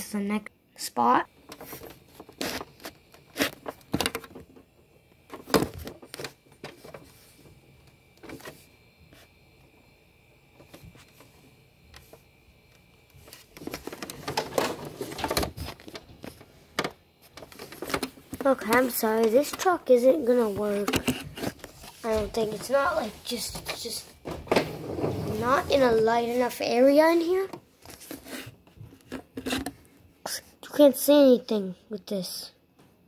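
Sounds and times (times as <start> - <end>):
rustling and scraping: 1.4 - 4.7, 13.2 - 29.9.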